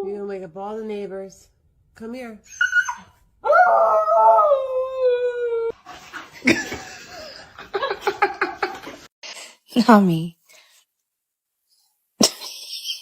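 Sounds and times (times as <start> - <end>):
dog howling: 2.7 - 5.8.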